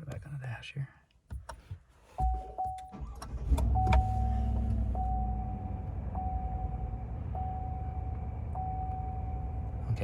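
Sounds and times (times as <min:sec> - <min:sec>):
dashboard warning chime: 0:02.2 - 0:09.7
car engine starting and idling: 0:02.2 - 0:10.0.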